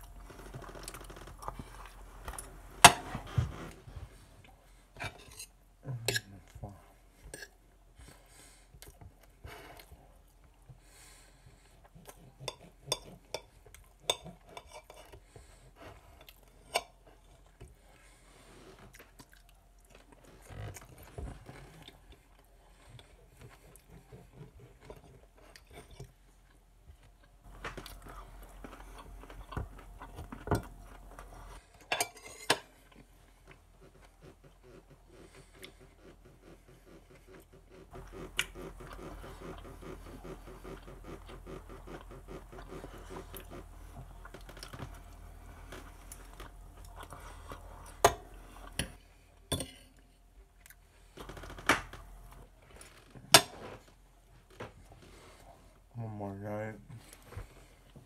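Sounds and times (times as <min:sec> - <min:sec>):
chewing and biting food: 0:18.8 - 0:31.7, 0:32.7 - 0:49.0
fork and knife on a plate: 0:31.9 - 0:32.7.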